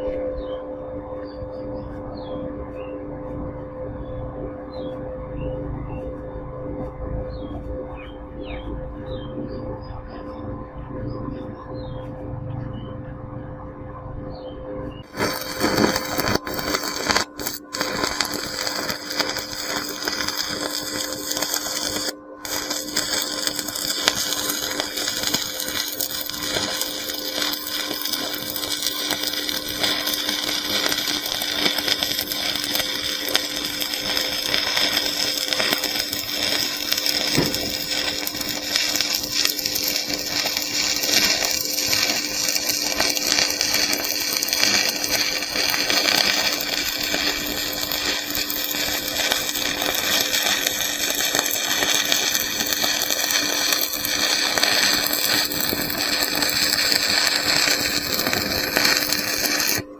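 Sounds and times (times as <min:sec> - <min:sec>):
constant hum: 0:00.0 - 0:59.9
welding arc crackling: 0:15.0 - 0:59.9.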